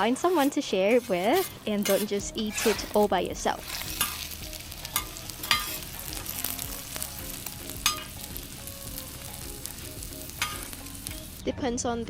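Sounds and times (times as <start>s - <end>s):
flatbread sizzling in oil: 0.0s - 11.4s
spatula clicking on pan: 4.9s - 6.6s, 10.3s - 10.8s.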